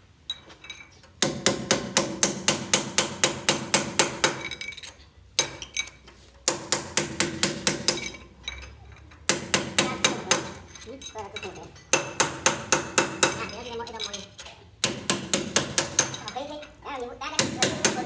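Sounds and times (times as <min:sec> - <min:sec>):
hammer striking metal: 0:01.2 - 0:05.9, 0:06.5 - 0:08.7, 0:09.3 - 0:10.8, 0:11.9 - 0:13.6, 0:14.8 - 0:16.4, 0:17.4 - 0:18.0.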